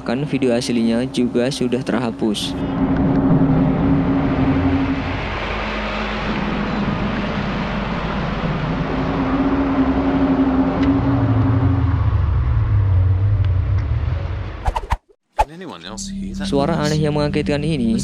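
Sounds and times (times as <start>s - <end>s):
low drone in the sky: 2.6s - 14.7s.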